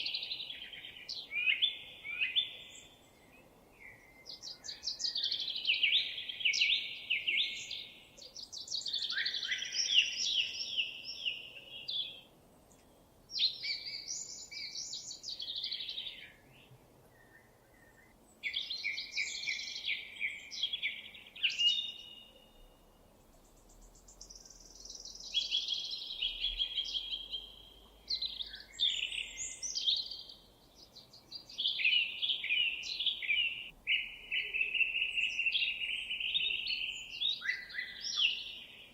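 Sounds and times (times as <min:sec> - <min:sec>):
songbird trills and warbles: 0:00.0 - 0:38.9.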